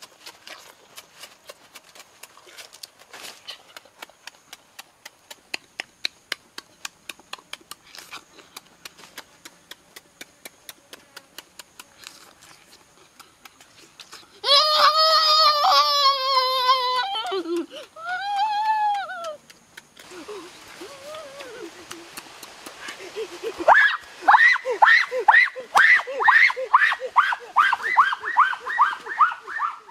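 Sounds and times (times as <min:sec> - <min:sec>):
chewing and mouth-smacking: 0:00.0 - 0:14.4
long vocal cry: 0:14.4 - 0:19.4, 0:20.1 - 0:22.0, 0:23.2 - 0:29.9.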